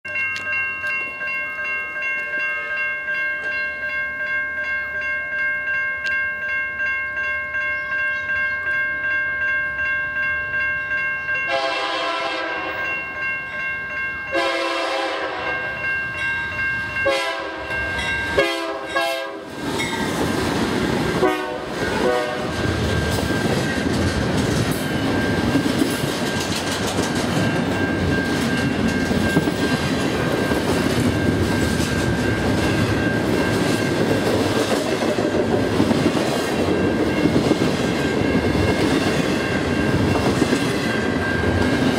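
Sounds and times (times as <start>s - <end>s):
crossing warning bells ringing: 0.0s - 41.9s
train rumble and wheel clatter: 5.6s - 41.9s
locomotive air horn blasts: 11.5s - 12.8s, 14.3s - 15.6s, 17.0s - 17.7s, 18.4s - 19.5s, 21.2s - 22.6s.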